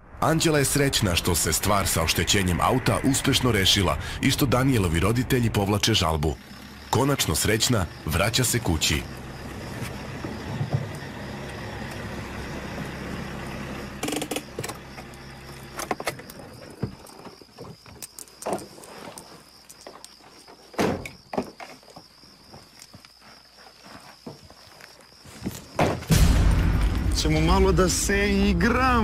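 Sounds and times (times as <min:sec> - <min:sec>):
car engine idling: 0:00.6 - 0:17.0, 0:26.1 - 0:29.0
knocks and thumps: 0:09.7 - 0:11.1, 0:25.4 - 0:27.3.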